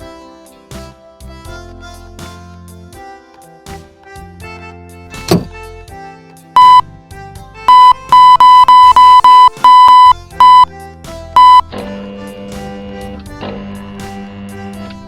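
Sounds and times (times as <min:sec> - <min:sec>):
background music: 0:00.0 - 0:15.0
short electronic beeps: 0:06.6 - 0:06.9, 0:07.7 - 0:10.7, 0:11.4 - 0:11.7.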